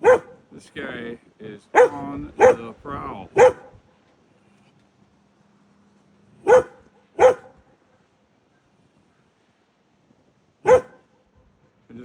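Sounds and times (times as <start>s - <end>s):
dog barking: 0.0s - 0.4s, 1.7s - 2.7s, 3.4s - 3.8s, 6.4s - 7.6s, 10.6s - 11.1s.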